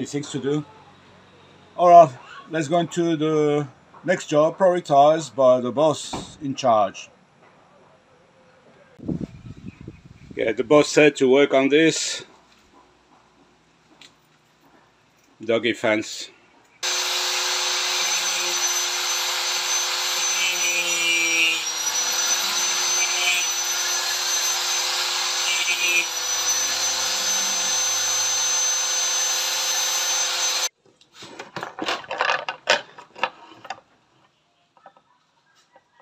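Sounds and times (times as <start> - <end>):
electric power tool whine: 16.8 - 30.7.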